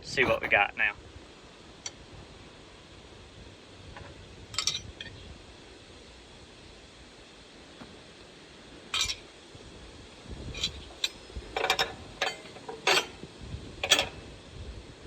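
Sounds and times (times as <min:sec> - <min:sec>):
metal fittings clinking: 0:04.6 - 0:04.8, 0:08.9 - 0:09.2, 0:10.6 - 0:13.2, 0:13.8 - 0:14.3.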